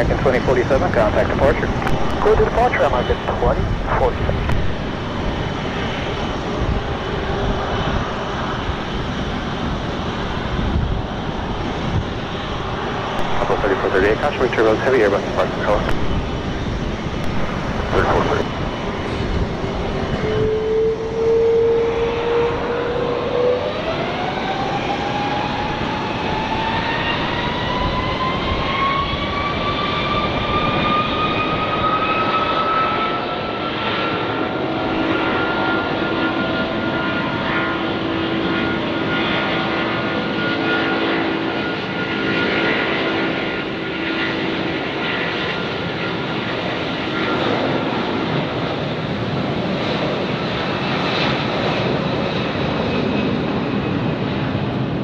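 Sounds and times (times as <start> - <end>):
jet engines at takeoff: 0.0 - 55.0.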